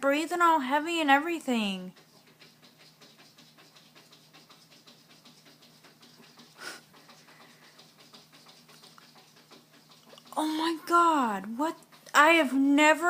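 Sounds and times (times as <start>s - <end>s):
cat panting: 1.9s - 12.2s.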